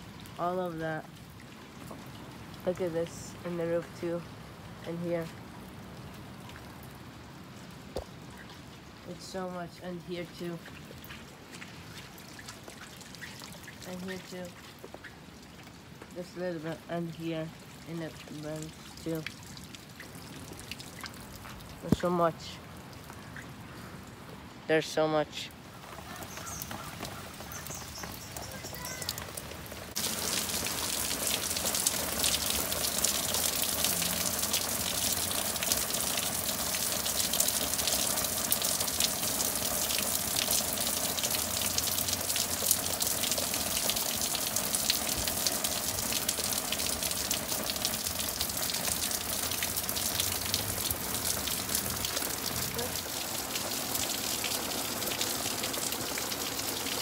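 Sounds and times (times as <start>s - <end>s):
heavy rain pouring: 25.5s - 57.0s.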